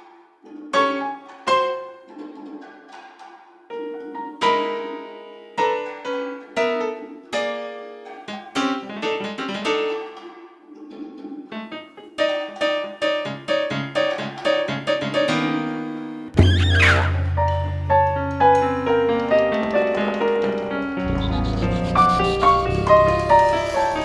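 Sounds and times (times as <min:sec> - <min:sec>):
piano melody: 0:00.8 - 0:02.4, 0:03.7 - 0:10.3, 0:11.5 - 0:24.0
low bass notes: 0:16.4 - 0:24.0.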